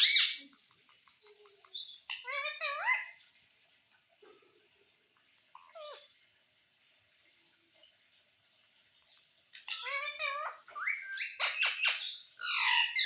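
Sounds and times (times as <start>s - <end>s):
parrot vocalising: 0.0s - 0.5s, 1.8s - 3.2s, 5.6s - 6.1s, 9.5s - 13.0s.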